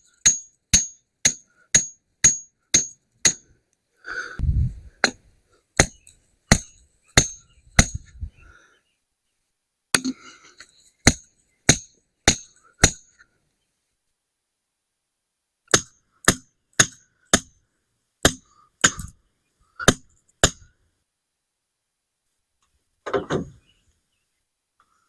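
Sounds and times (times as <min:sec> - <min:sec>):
mallet striking metal post: 0:00.3 - 0:03.4, 0:05.8 - 0:08.1, 0:11.1 - 0:13.0, 0:15.7 - 0:17.5, 0:19.9 - 0:20.7.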